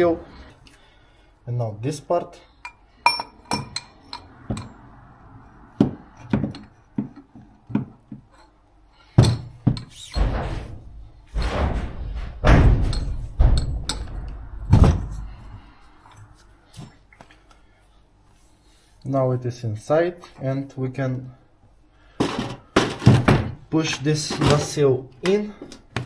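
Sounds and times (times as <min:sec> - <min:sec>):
heavy metal thuds: 0:09.1 - 0:15.7.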